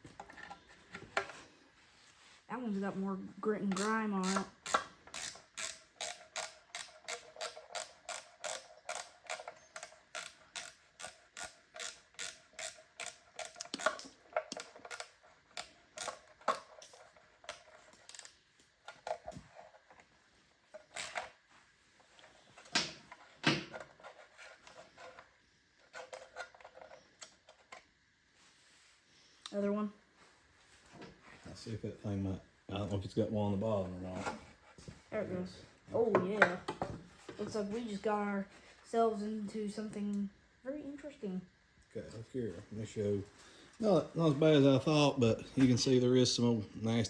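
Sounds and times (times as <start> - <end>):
ratchet wrench clicking: 3.7 - 14.0.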